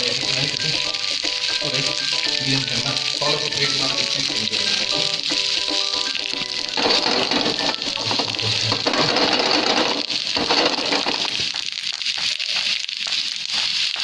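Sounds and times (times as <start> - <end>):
oil sizzling in a pan: 0.0 - 14.0.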